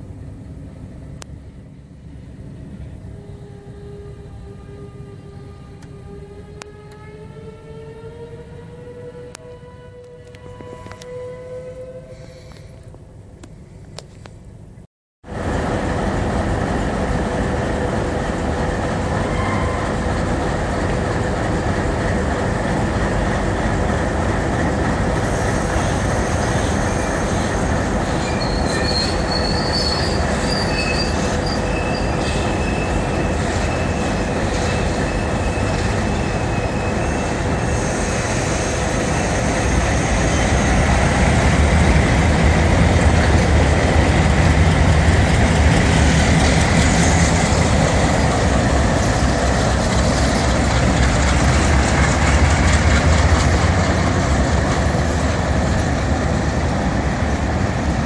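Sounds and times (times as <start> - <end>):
diesel locomotive engine drone: 0.0 - 58.0
wheel noise on rails: 9.3 - 58.0
high-pitched wheel squeals: 19.2 - 19.9, 25.4 - 40.8.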